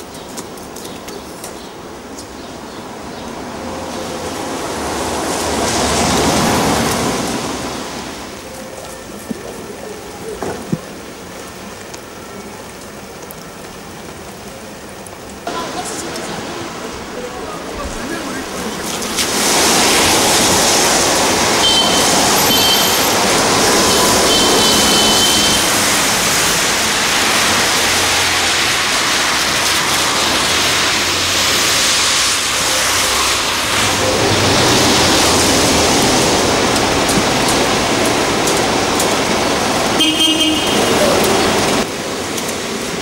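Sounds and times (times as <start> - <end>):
street traffic noise: 0.0 - 43.0
car horn toots: 21.6 - 23.1, 23.8 - 25.8, 40.0 - 41.4.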